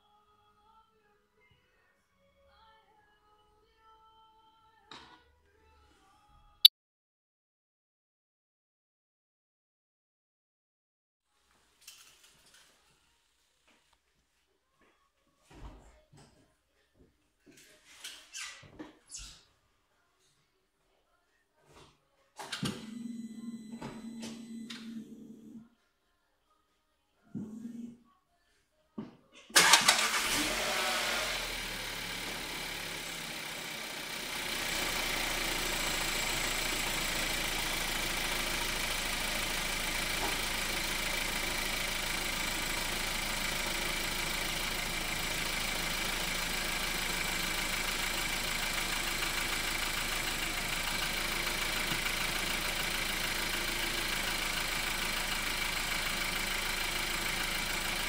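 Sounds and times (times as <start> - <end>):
car engine starting and idling: 29.6 - 58.0.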